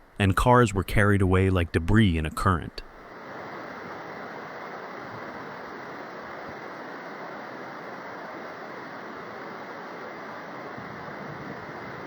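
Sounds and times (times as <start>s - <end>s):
rushing storm wind: 3.0s - 12.0s.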